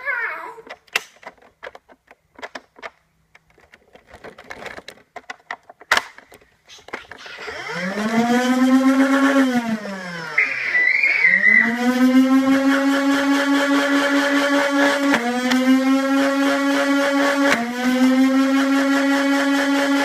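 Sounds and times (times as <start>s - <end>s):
plastic clicks and knocks: 0.6s - 7.3s
flywheel motors whining: 6.7s - 20.0s.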